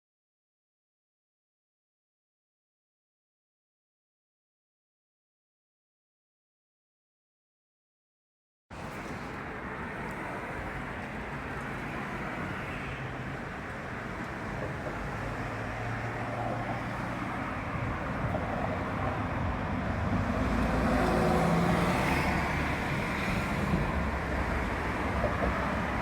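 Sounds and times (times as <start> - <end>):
vehicle passing: 8.8 - 26.0.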